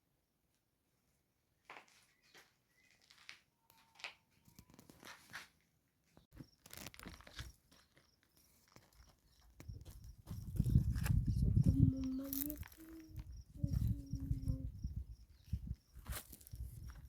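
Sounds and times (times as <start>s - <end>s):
rustling and crunching: 6.3s - 14.3s, 15.4s - 17.0s.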